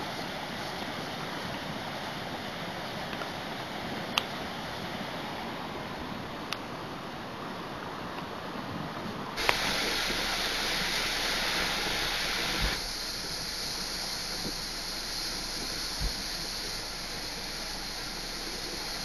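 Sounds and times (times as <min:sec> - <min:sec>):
car tyres on wet road: 0:00.0 - 0:19.0.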